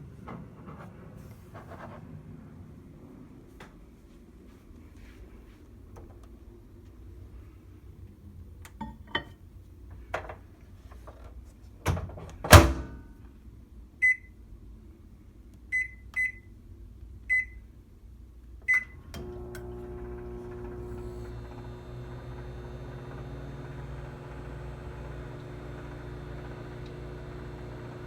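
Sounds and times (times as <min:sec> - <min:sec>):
microwave door thud: 0:11.9 - 0:13.0
keypad beeps: 0:15.8 - 0:16.4
microwave humming: 0:18.7 - 0:28.0.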